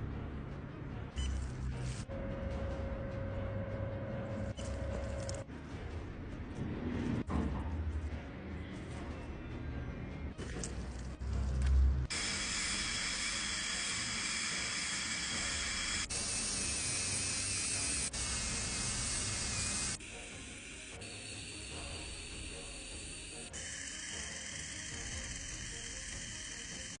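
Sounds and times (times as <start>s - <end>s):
dental drill hissing and whining: 12.1s - 27.0s.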